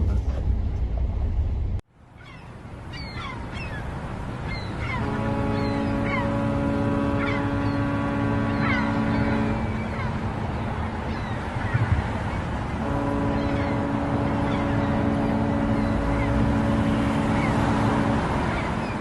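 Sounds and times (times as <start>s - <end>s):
low engine rumble: 0.0s - 1.8s, 2.6s - 19.0s
birds chirping: 2.1s - 19.0s
ship's horn blast: 4.5s - 19.0s.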